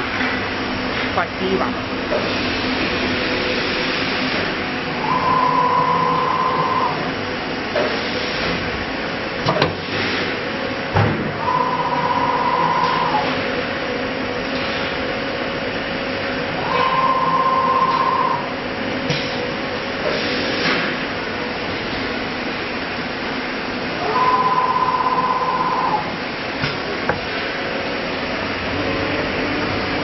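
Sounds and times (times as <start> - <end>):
cnc router hum: 0.0 - 7.8, 10.6 - 19.1, 21.2 - 30.0
machine whine: 2.0 - 8.6, 11.2 - 19.5, 22.9 - 30.0.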